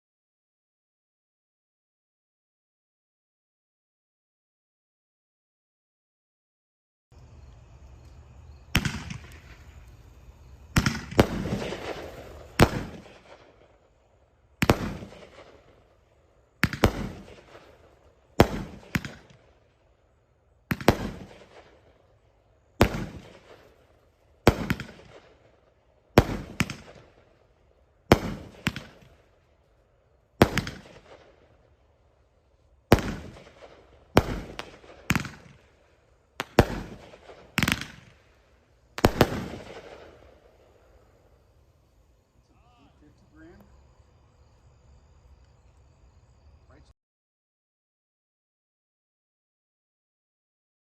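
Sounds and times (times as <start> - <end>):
fireworks bangs: 8.1 - 19.7, 20.6 - 29.4, 30.4 - 31.8, 32.8 - 41.4.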